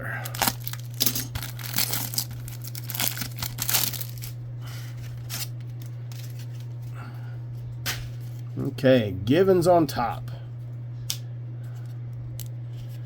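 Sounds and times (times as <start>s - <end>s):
low hum: 0.0s - 13.0s
plastic wrapper tearing and crinkling: 0.2s - 4.4s, 5.0s - 6.7s.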